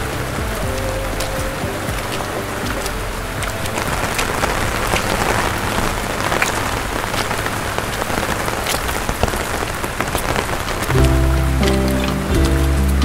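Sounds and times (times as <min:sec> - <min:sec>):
rain on a hard surface: 0:00.0 - 0:13.0.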